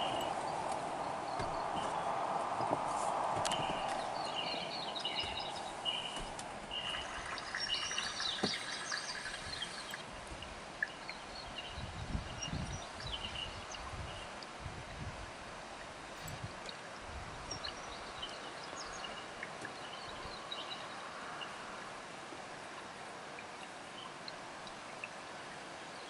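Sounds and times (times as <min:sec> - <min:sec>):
steady hiss: 0:00.0 - 0:11.4
songbirds calling: 0:00.0 - 0:14.4, 0:16.0 - 0:21.9.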